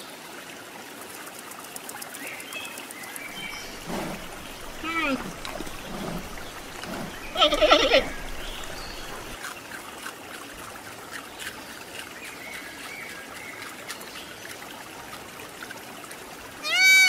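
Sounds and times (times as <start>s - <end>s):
faint high squeaks: 3.3s - 9.4s
brief bleating call: 7.1s - 8.4s.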